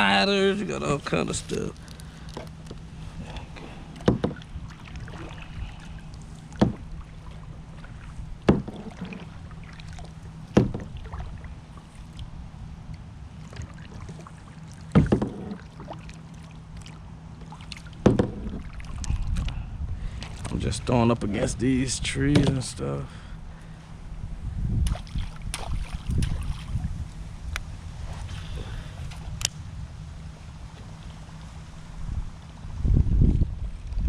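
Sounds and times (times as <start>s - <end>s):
steady low hum: 0.0s - 34.0s
sharp knocks on a kayak: 4.0s - 4.4s, 6.6s - 6.9s, 8.4s - 9.3s, 10.5s - 11.0s, 14.9s - 15.6s, 18.0s - 18.7s, 22.3s - 22.6s.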